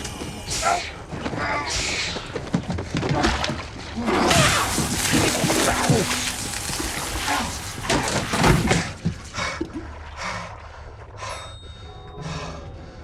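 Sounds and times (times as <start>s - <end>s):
crashing and scuffling: 1.1s - 9.2s.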